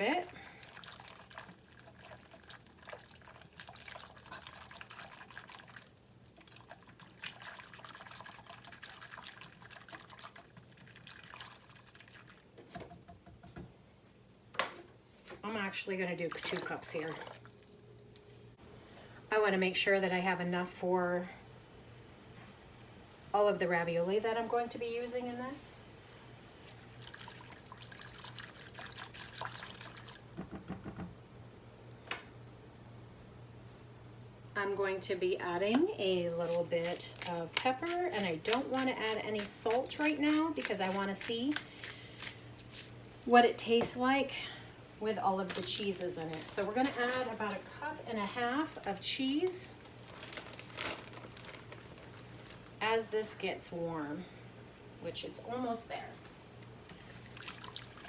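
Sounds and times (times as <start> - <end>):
liquid bubbling in a pan: 0.0 - 12.7, 26.6 - 31.1, 56.7 - 58.0
milk pouring into saucepan: 0.4 - 12.6, 26.6 - 30.5, 57.0 - 58.0
carton gulping: 26.6 - 30.4, 56.8 - 58.0.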